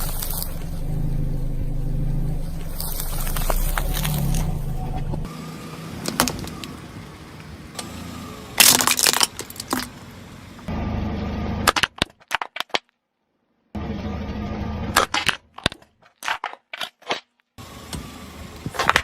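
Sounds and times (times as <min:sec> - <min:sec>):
steady low hum: 0:00.0 - 0:05.3
brittle material crunching and snapping: 0:02.8 - 0:04.5, 0:08.6 - 0:09.9, 0:11.7 - 0:12.9, 0:15.0 - 0:17.4.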